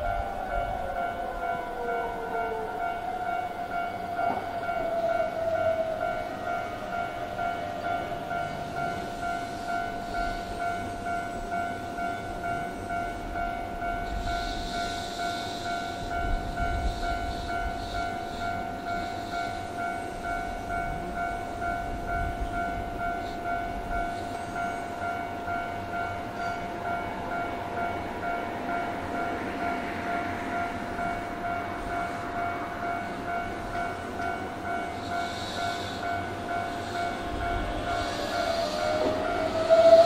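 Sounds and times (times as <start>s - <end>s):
train rumble: 0.0s - 40.0s.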